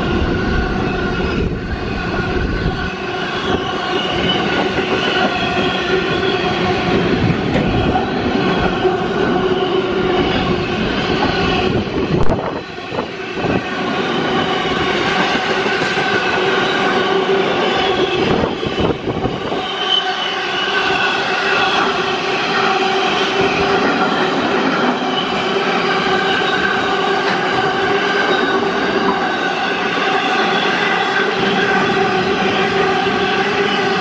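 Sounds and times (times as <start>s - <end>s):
train wheels rumbling on rail: 0.0s - 34.0s
wheels ringing squeal: 0.0s - 34.0s.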